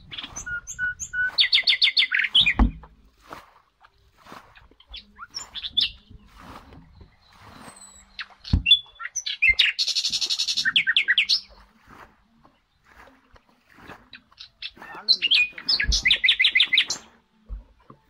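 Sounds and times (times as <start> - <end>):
birds chirping: 0.0 - 18.0
soft water splashes: 0.0 - 18.0
thump: 2.4 - 2.9.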